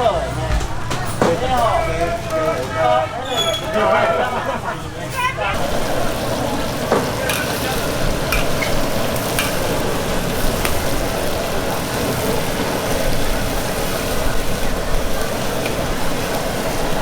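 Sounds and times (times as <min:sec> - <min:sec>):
chicken sizzling in a wok: 0:05.5 - 0:17.0.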